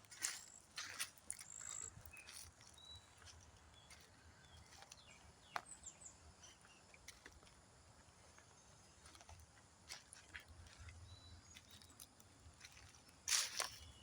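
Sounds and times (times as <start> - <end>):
faint outdoor ambience: 0.0 - 14.0.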